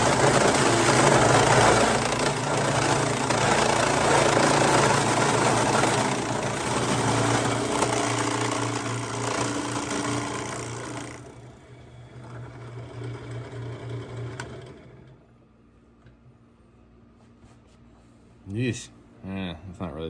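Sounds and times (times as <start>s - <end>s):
electric drill boring plastic pipe: 0.0s - 15.2s.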